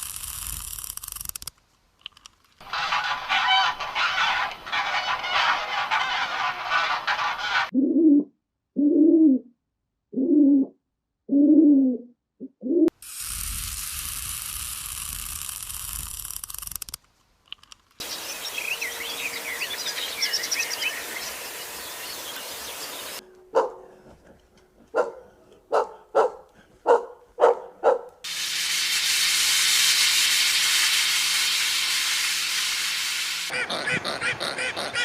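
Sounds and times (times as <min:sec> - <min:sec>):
steady rushing hiss: 0:13.0 - 0:16.9, 0:18.0 - 0:23.2
high chirping: 0:18.0 - 0:23.2
dog barking: 0:23.5 - 0:24.0, 0:24.9 - 0:28.2.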